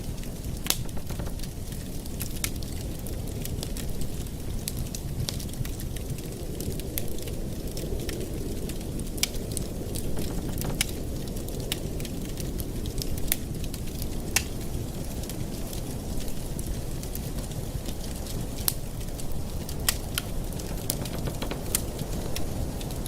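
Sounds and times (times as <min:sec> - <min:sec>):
low rumble of flames: 0:00.0 - 0:23.0
wood fire crackling: 0:00.0 - 0:23.0
sharp pops of fire: 0:00.6 - 0:02.9, 0:10.0 - 0:12.4.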